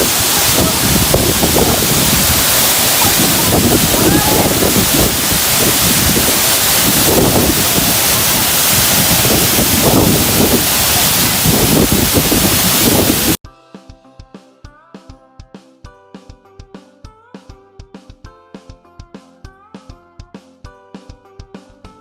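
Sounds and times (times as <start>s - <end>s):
voices calling out: 0.0s - 6.8s
waterfall rushing: 0.0s - 13.4s.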